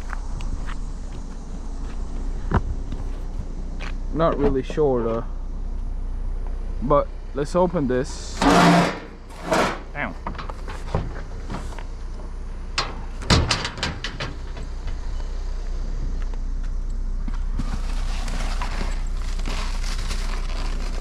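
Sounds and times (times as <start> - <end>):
knocks and rattles: 12.8 - 15.0.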